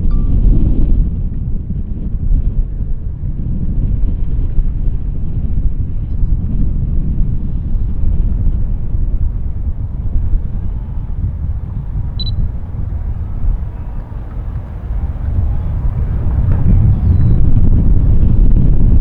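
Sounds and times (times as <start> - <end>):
wind buffeting microphone: 0.0 - 19.0
short high chirp: 12.2 - 12.4.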